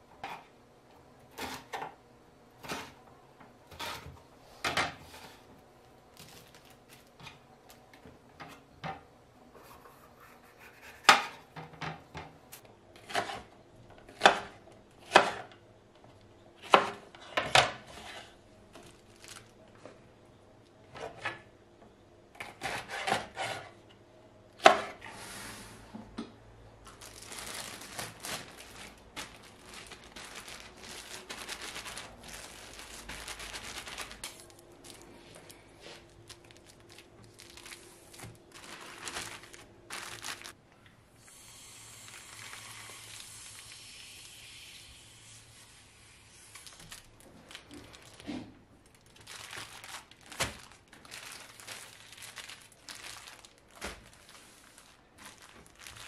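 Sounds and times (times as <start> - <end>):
steady hiss: 41.1 - 46.6.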